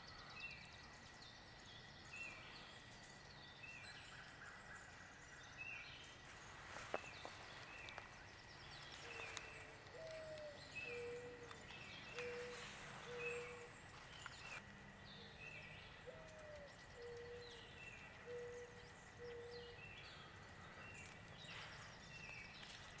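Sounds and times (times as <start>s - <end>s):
low cooing bird: 6.6s - 22.9s.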